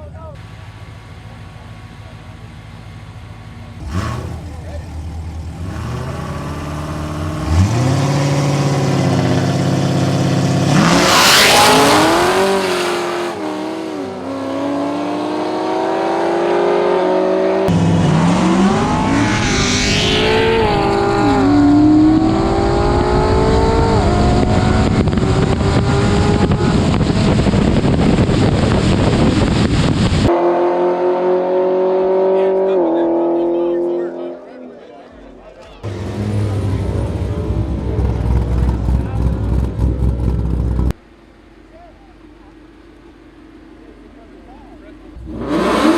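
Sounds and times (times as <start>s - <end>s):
car engine accelerating hard: 1.4s - 34.5s, 35.8s - 41.0s, 44.4s - 45.9s
loud rough burst: 17.7s - 30.3s.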